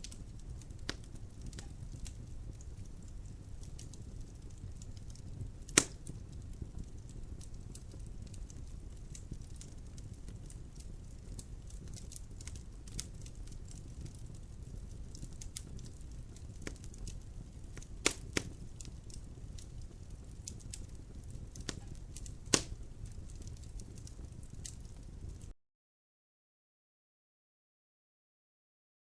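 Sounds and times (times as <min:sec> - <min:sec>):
wood fire crackling: 0:00.0 - 0:25.5.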